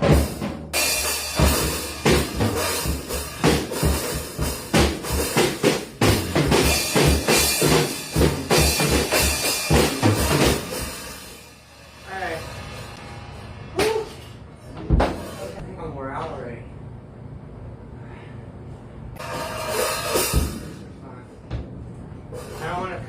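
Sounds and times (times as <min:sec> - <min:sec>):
bass drum hits: 0:00.0 - 0:15.6
ringing cymbals: 0:19.2 - 0:20.8.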